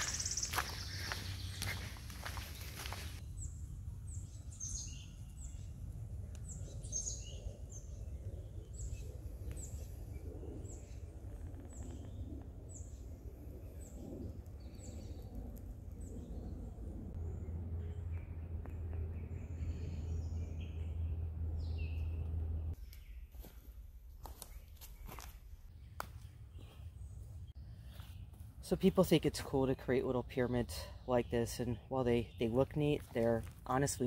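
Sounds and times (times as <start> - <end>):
steady low rumble: 0.0 - 22.8
songbird chirping: 0.0 - 23.6, 24.2 - 34.0.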